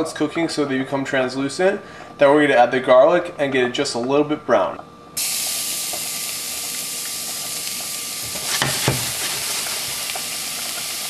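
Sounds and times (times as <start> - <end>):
shallots sizzling in hot oil: 5.2 - 11.0.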